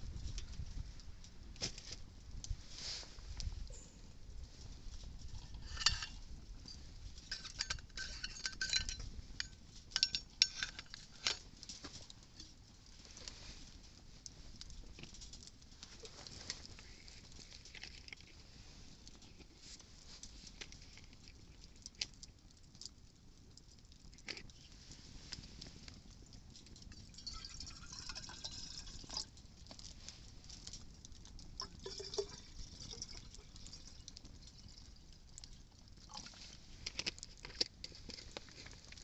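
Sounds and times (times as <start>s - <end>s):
faint low wind rumble: 0.0s - 10.2s
wood fire crackling and popping: 0.0s - 39.0s.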